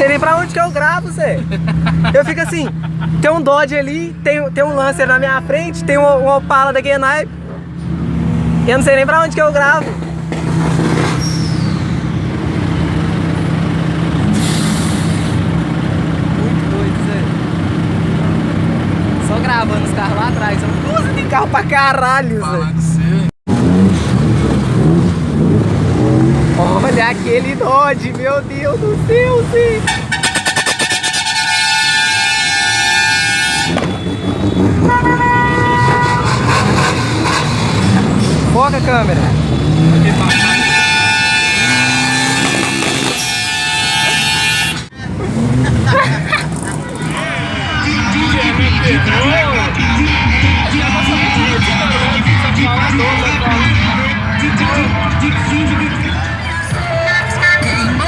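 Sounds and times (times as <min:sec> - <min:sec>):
vehicle engines rumbling: 0:00.0 - 0:58.0
vehicle horn blasts: 0:29.8 - 0:36.6, 0:40.1 - 0:44.9
crowd noise: 0:44.7 - 0:58.0.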